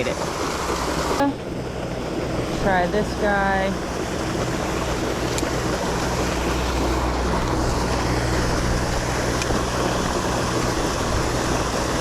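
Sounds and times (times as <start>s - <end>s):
low steady hum: 0.0s - 12.0s
wind on microphone: 0.0s - 12.0s.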